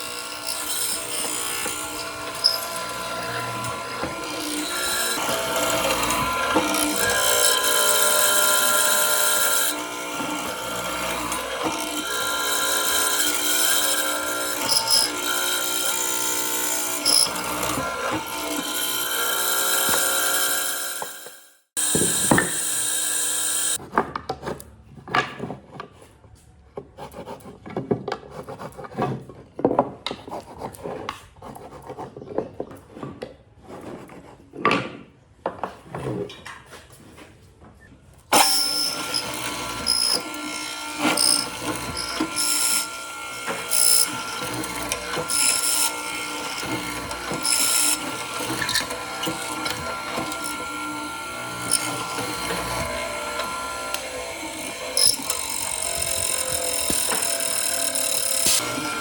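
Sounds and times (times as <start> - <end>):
power tool running: 0.0 - 23.8, 38.3 - 59.0
scraping and knocking on wood: 26.8 - 37.7.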